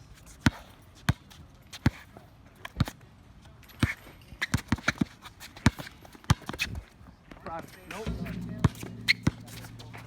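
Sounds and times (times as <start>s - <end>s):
footsteps: 8.1s - 10.0s.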